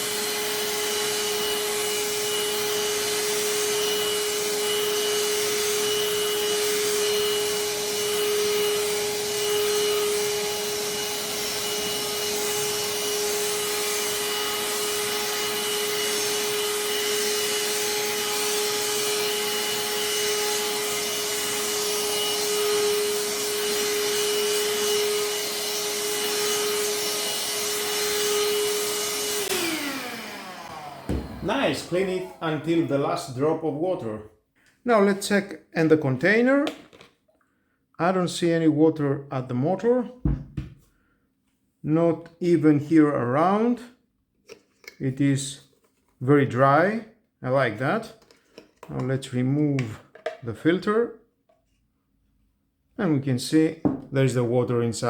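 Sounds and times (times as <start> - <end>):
handheld vacuum motor whine: 0.0 - 33.1.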